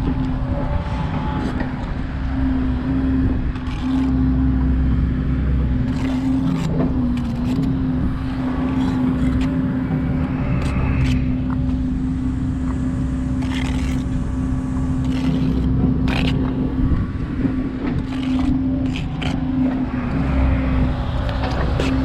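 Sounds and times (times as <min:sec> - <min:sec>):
engine hum: 0:00.0 - 0:22.0
low wind rumble: 0:00.0 - 0:22.0
trowel scraping on brick: 0:03.5 - 0:04.5, 0:05.8 - 0:11.8, 0:12.6 - 0:22.0.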